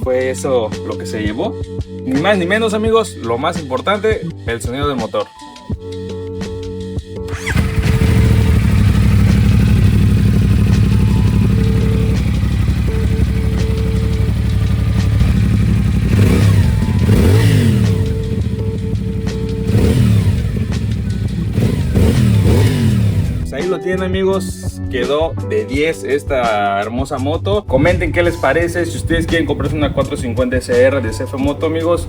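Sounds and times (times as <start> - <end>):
motorcycle engine idling and revving: 6.4 - 23.6, 28.7 - 32.0.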